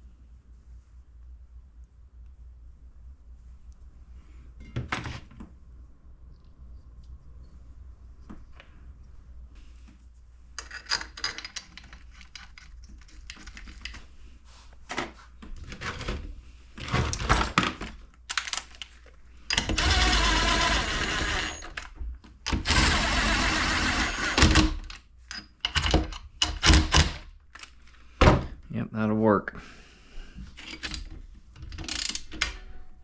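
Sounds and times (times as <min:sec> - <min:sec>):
metal tools clicking and knocking: 0:10.6 - 0:13.9.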